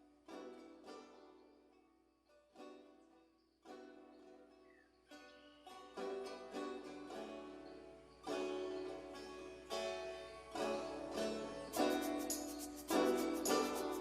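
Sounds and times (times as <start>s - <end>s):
plucked guitar-like music: 0.0s - 14.0s.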